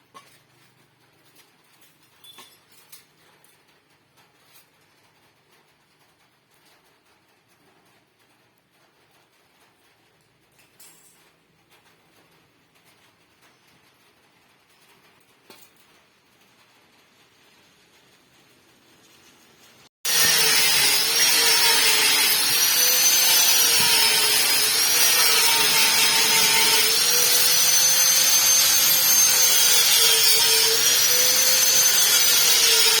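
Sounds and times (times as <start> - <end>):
electric power tool whining: 20.1 - 33.0.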